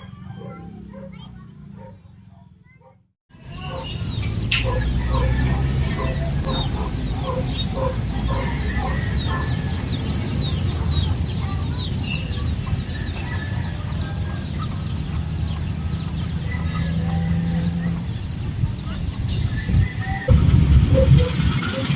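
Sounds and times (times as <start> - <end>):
many birds chirping: 0.0 - 21.9
steady low rumble: 20.3 - 21.8.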